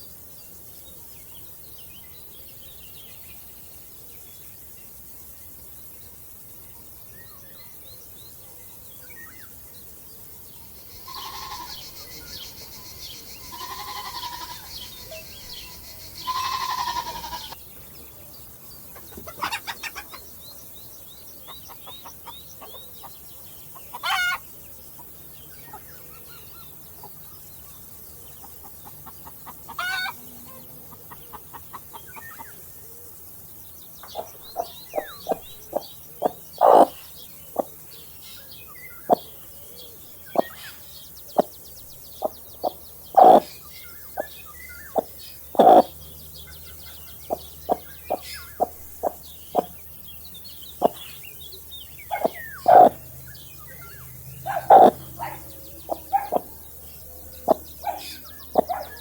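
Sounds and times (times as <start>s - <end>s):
small birds chirping: 0.0s - 59.0s
chickens clucking: 10.8s - 17.6s, 18.8s - 20.4s, 21.5s - 24.4s, 28.3s - 32.6s, 34.0s - 37.7s, 39.1s - 39.4s, 41.3s - 49.8s, 50.7s - 51.2s, 52.0s - 53.1s, 54.4s - 59.0s.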